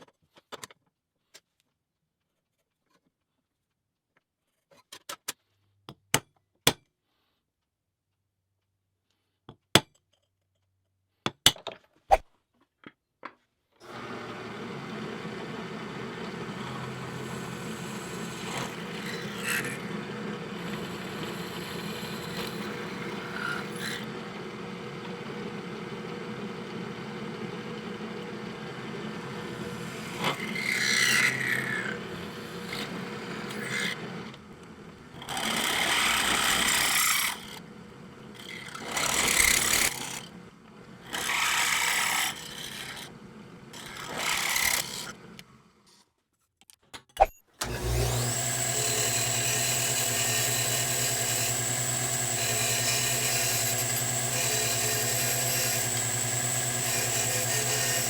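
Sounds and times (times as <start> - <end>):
electric power tool running: 13.8 - 45.4, 47.6 - 58.0.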